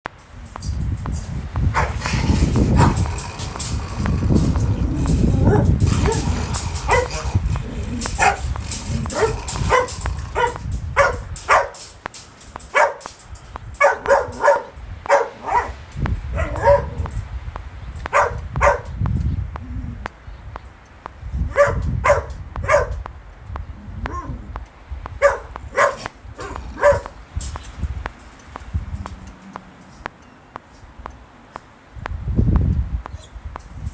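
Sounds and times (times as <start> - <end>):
wind rumble: 0.1 - 30.2, 30.9 - 33.9
dog barking: 1.7 - 11.8, 12.7 - 13.1, 13.8 - 17.1, 18.1 - 19.0, 21.4 - 23.0, 24.0 - 24.4, 25.2 - 27.2.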